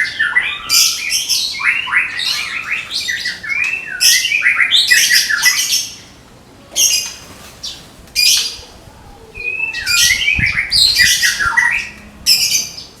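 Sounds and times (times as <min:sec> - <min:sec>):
bird singing whistled phrases: 0:00.0 - 0:05.9, 0:09.4 - 0:12.6.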